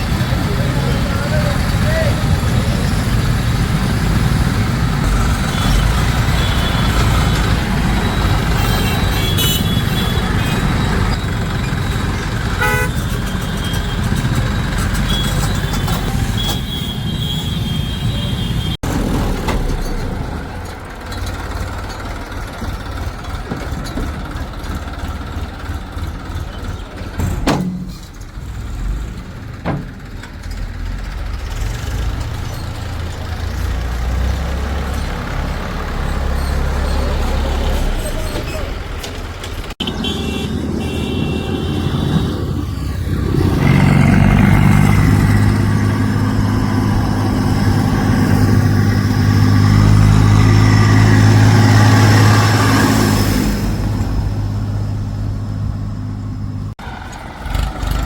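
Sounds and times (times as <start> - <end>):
heavy diesel machinery engines: 0.0 - 58.0
high horn-like tone: 12.6 - 14.0, 39.8 - 42.5.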